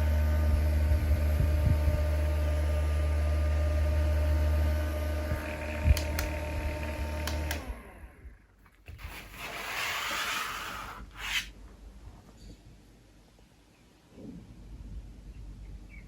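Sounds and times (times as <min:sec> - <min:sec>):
small fan motor humming and whining: 0:00.0 - 0:11.6
clicks: 0:07.2 - 0:07.7.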